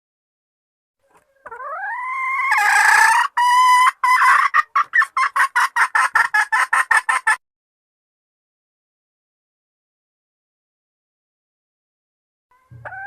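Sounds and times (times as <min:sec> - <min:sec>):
hen clucking: 0:01.0 - 0:07.4, 0:12.5 - 0:13.0.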